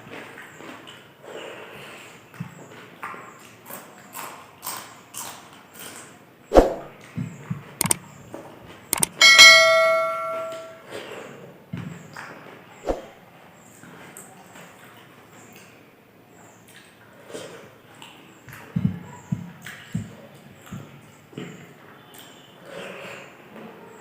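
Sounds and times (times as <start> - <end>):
metal dish struck ringing: 9.0 - 10.8.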